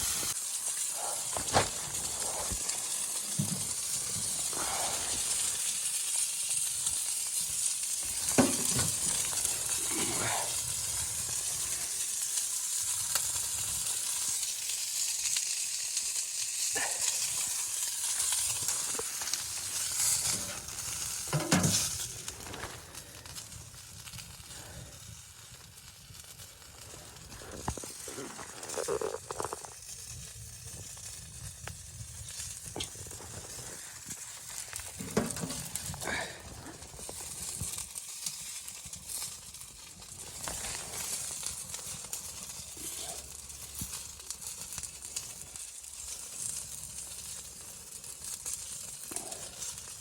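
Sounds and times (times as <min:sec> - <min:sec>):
high-pitched hiss: 0:00.0 - 0:07.2
knocks and scrapes: 0:21.3 - 0:22.8, 0:34.8 - 0:35.8.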